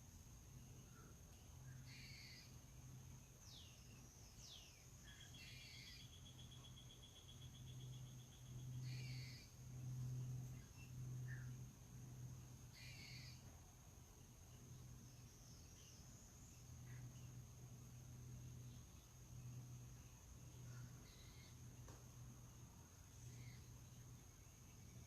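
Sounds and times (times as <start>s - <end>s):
low hum: 0.0s - 25.0s
bird calls and chirps: 0.6s - 11.7s, 12.3s - 17.5s, 18.4s - 22.0s, 23.1s - 25.0s
high-pitched insect trill: 0.6s - 13.6s.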